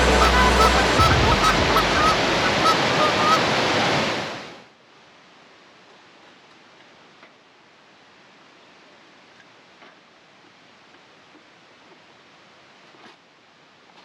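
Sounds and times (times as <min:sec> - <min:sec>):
short high calls: 0:00.0 - 0:03.6
river water rushing: 0:00.0 - 0:04.7
faint steady hiss: 0:00.0 - 0:14.0.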